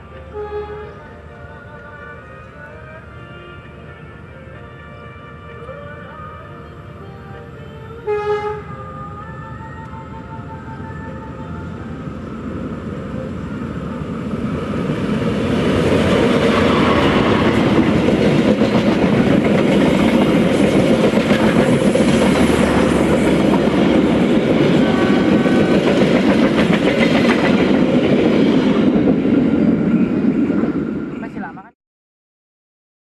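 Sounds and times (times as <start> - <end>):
train wheels clattering over rails: 15.3 - 30.7.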